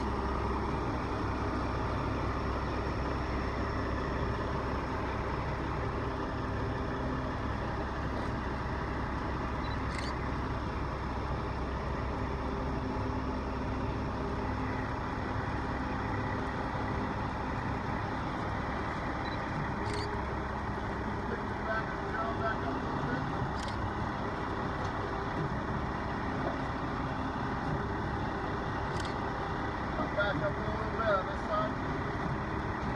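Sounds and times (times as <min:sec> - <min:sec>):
heavy engine idling: 0:00.0 - 0:32.9.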